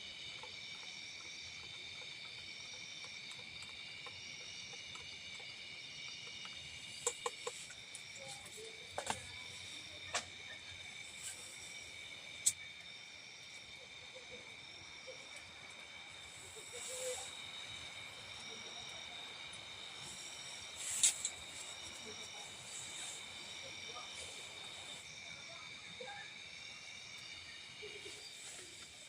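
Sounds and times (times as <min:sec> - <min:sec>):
high-pitched insect drone: 0:00.0 - 0:29.0
short hiss: 0:20.8 - 0:21.7.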